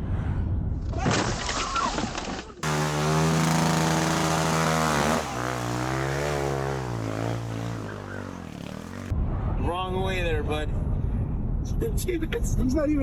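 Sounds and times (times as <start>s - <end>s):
engine running: 2.6s - 9.1s.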